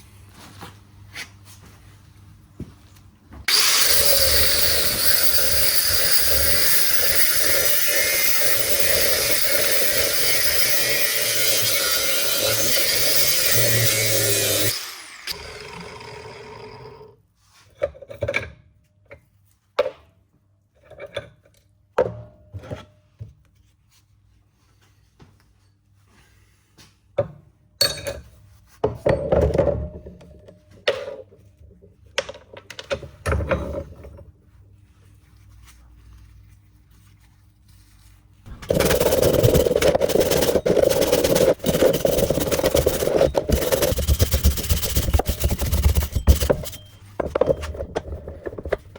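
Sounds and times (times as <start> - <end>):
angle grinder cutting metal: 3.5 - 17.1, 38.5 - 48.0
loud power tool running: 3.5 - 17.1, 38.5 - 46.9
metal parts and tools clinking: 38.5 - 48.9.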